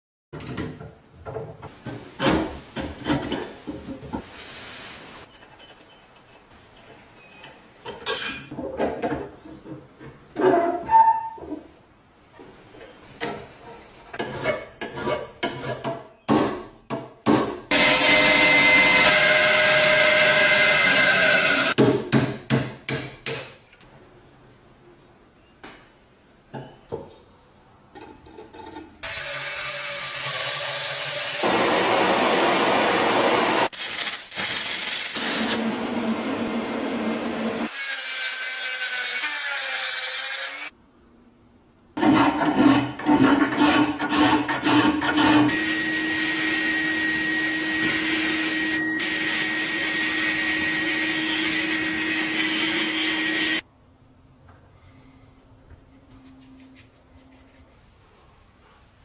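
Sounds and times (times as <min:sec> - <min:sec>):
power tool humming: 0:45.5 - 0:53.6.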